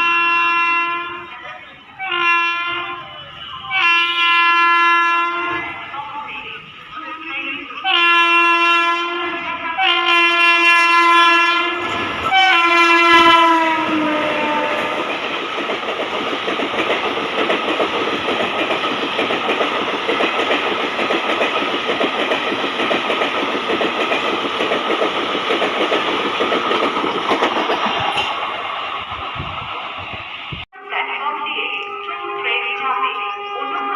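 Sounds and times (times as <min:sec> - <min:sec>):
locomotive horn blasts: 0:00.0 - 0:01.4, 0:02.0 - 0:05.8, 0:07.8 - 0:15.1, 0:31.7 - 0:33.9
train coaches rumbling past: 0:00.0 - 0:33.9.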